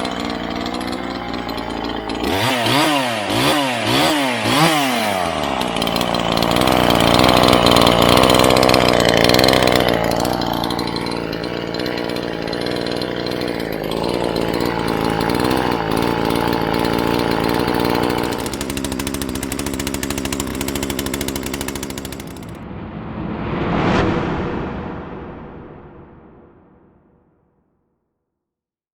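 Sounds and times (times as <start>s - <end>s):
chainsaw engine running: 0.0s - 22.6s.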